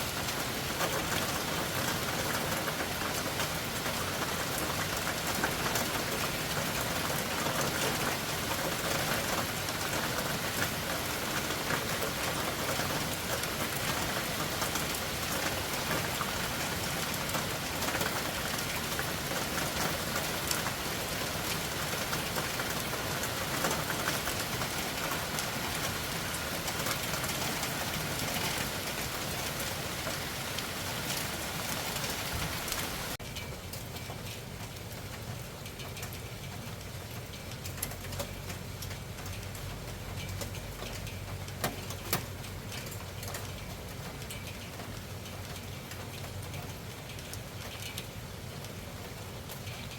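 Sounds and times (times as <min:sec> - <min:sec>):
raindrop ticks: 0:00.2 - 0:49.9
heavy rain hissing: 0:05.4 - 0:33.2.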